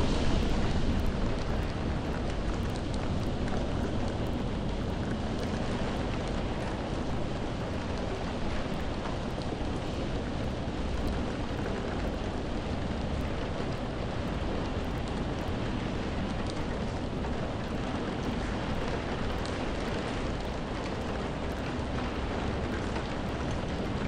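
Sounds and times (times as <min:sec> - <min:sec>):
deep low rumble: 0:00.0 - 0:05.1
steady rain falling: 0:00.0 - 0:24.0.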